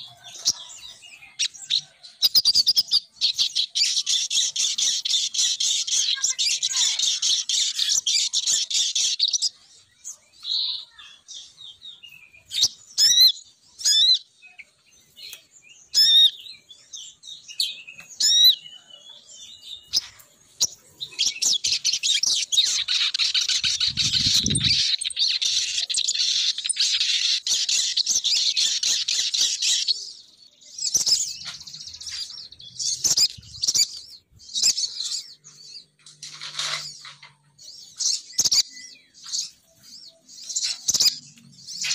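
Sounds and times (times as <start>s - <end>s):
sharp bird chirps: 0.0s - 41.9s
rapid high bird chattering: 19.8s - 30.0s, 30.8s - 35.3s.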